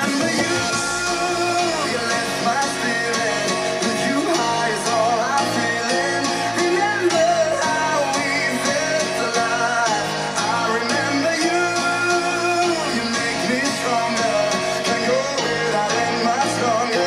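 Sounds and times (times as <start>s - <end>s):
rock and roll song over speakers: 0.0s - 17.0s.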